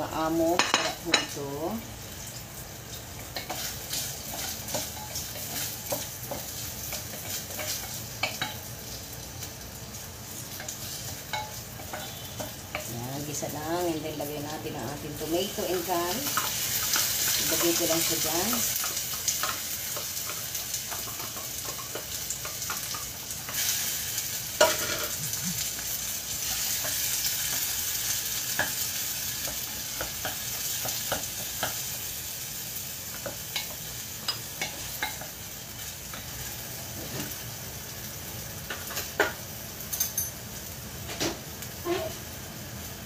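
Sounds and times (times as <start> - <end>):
tomatoes sizzling in oil: 0.0 - 43.0
spatula stirring and scraping: 10.5 - 13.0.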